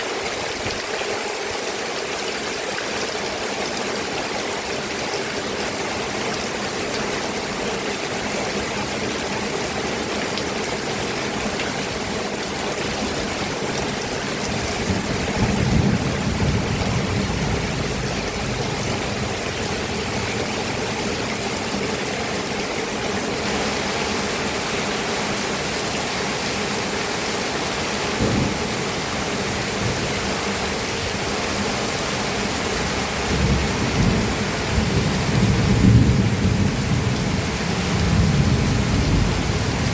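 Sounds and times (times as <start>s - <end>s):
heavy rain hissing: 3.1s - 39.9s
thunder rumbles: 13.9s - 21.5s, 28.1s - 31.2s, 32.8s - 39.9s.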